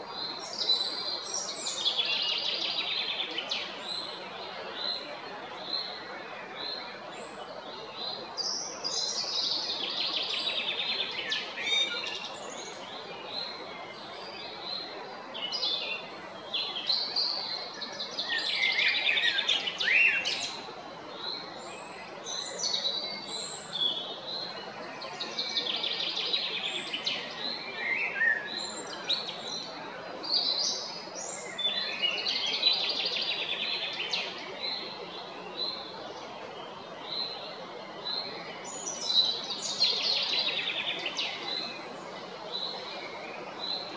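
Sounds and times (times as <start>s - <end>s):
steady background hiss: 0.0s - 43.9s
blackbird singing: 18.2s - 20.6s, 25.2s - 29.7s.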